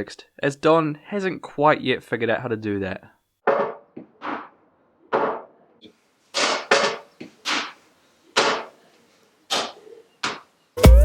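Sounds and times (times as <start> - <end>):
sharp knocks in a small room: 3.4 - 5.6, 6.4 - 7.8.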